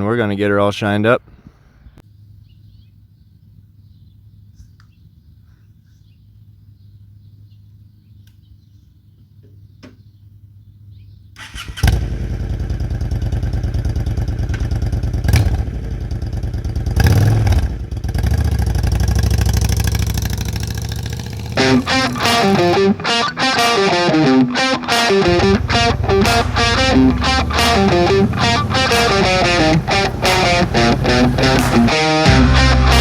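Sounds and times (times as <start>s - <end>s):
motorcycle engine starting and revving: 11.4s - 33.0s
music: 21.6s - 33.0s.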